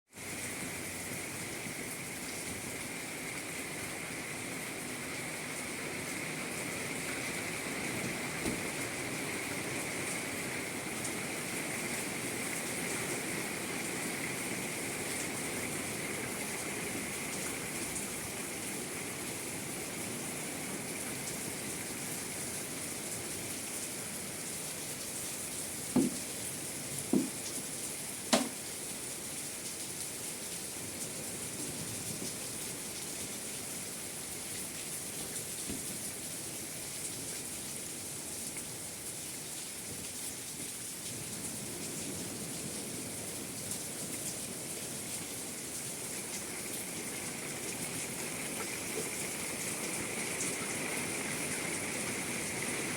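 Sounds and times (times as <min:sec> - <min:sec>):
rain falling: 0:00.1 - 0:52.9
short knocks: 0:26.0 - 0:26.3, 0:27.1 - 0:27.4, 0:28.3 - 0:28.6.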